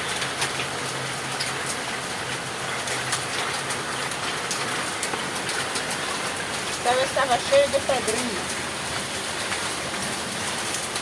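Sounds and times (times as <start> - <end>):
hailstones ticking on hard surfaces: 0.0 - 11.0
heavy rain hissing: 3.8 - 11.0.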